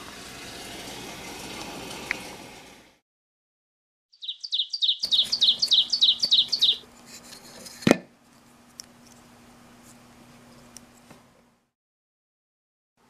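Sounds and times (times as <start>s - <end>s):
bird chirping: 4.1s - 6.8s.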